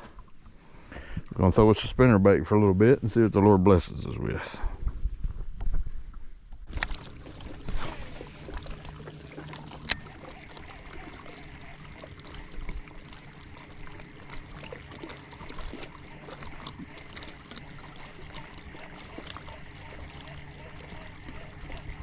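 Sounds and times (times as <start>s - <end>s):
faint low hum: 0.0s - 22.0s
light rain on water: 8.1s - 22.0s.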